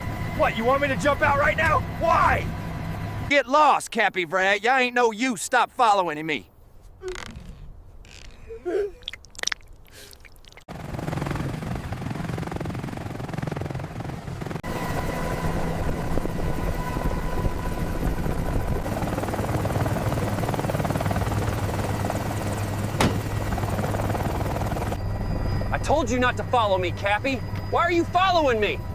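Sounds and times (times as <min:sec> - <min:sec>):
helicopter rotor and engine noise: 0:00.0 - 0:03.4, 0:10.7 - 0:28.9
turbine whine: 0:10.7 - 0:28.9.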